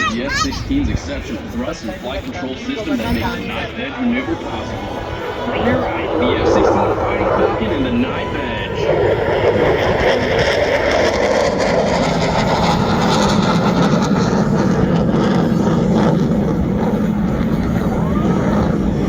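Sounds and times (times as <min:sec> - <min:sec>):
fighter jet flying past: 0:00.0 - 0:19.0.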